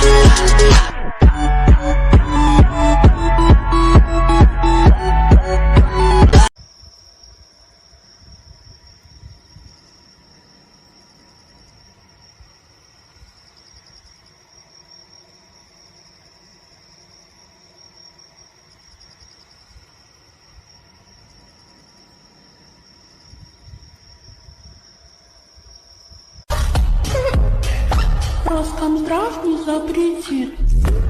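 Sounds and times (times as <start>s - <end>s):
insects chirping: 6.5s - 26.5s.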